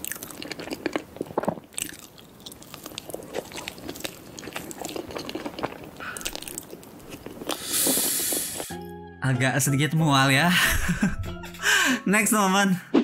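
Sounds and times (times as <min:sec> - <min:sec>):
chewing and smacking: 0:00.0 - 0:08.7.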